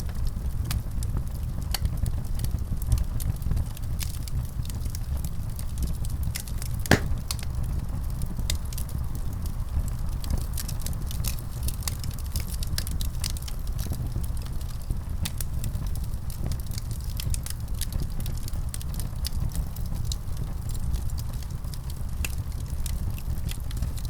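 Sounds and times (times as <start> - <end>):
wood fire crackling: 6.9 - 7.5.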